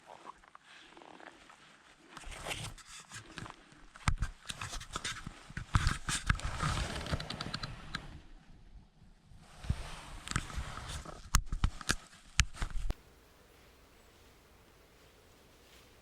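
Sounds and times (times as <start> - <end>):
crunching scraping and clicking: 2.1 - 8.1.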